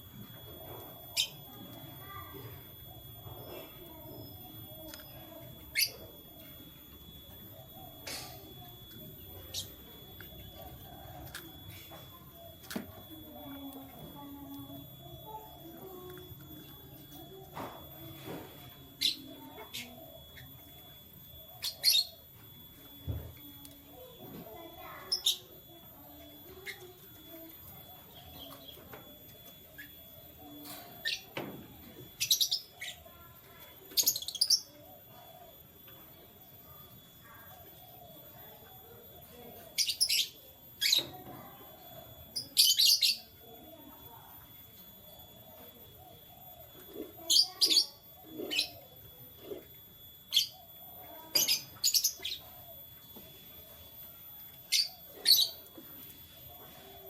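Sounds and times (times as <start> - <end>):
canaries chirping: 44.9 - 57.0.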